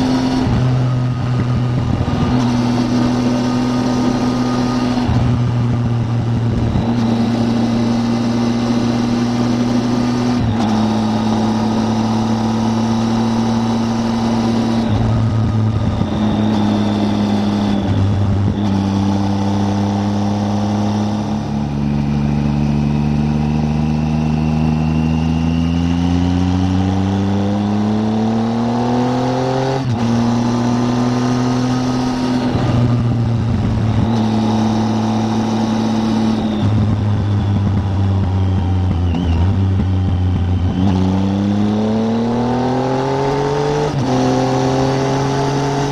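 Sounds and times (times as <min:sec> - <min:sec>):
motorcycle engine on the road: 0:00.0 - 0:45.9.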